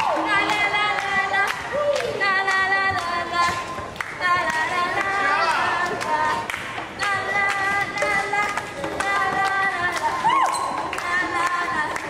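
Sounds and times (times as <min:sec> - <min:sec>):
group of voices singing: 0:00.0 - 0:12.0
hand clapping: 0:00.0 - 0:12.0.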